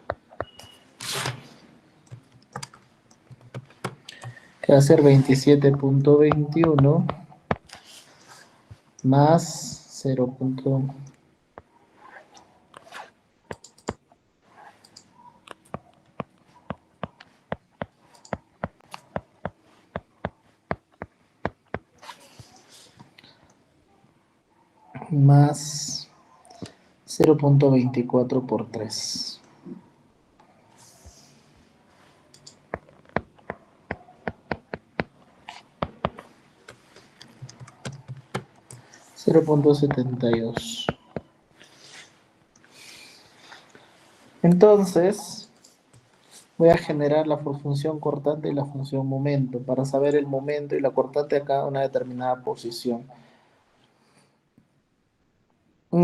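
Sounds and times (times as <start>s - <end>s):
keys clicking: 35.9s - 39.0s.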